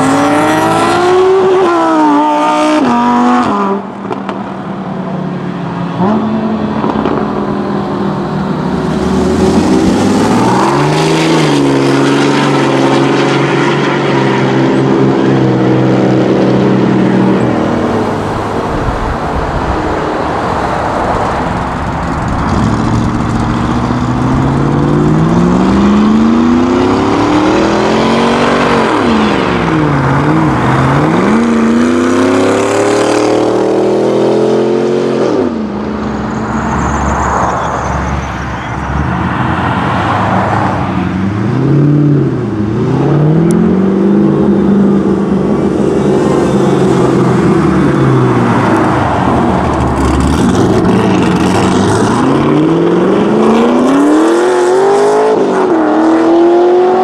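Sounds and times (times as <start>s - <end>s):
engine revving: 0.0s - 3.8s, 8.7s - 17.3s, 21.9s - 35.7s, 41.5s - 57.0s
passing road traffic: 0.0s - 57.0s
engines accelerating away: 5.9s - 37.4s, 38.8s - 57.0s.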